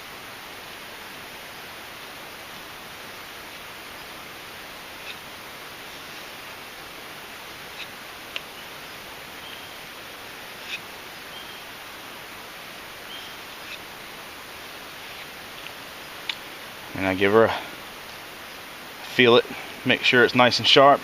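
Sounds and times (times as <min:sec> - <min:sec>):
woodland background hiss: 0:00.0 - 0:21.0
faint sharp clicks: 0:15.6 - 0:16.4.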